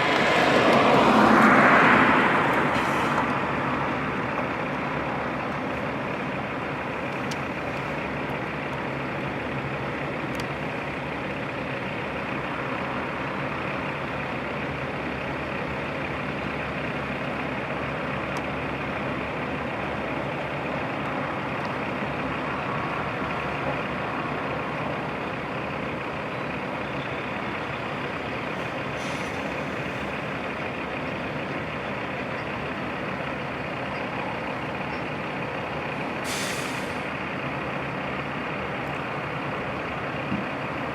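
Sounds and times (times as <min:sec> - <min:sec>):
diesel truck engines running: 0:00.0 - 0:40.9
short hiss: 0:36.2 - 0:37.0.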